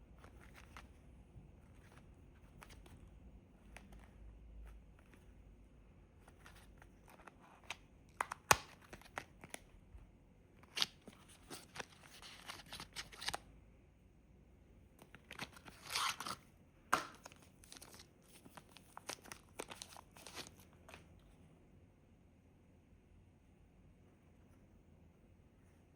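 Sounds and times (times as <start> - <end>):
packaging crinkling and tearing: 10.6 - 13.4, 15.0 - 16.4, 17.0 - 21.0.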